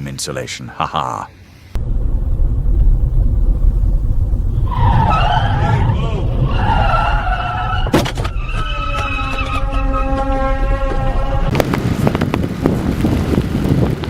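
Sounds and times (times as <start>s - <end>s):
truck engine rumbling: 1.8s - 14.0s
tyres squealing: 4.6s - 11.6s.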